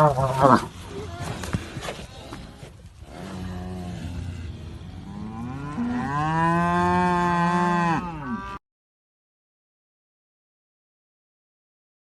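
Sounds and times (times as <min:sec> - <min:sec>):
cow mooing: 0:00.0 - 0:08.6.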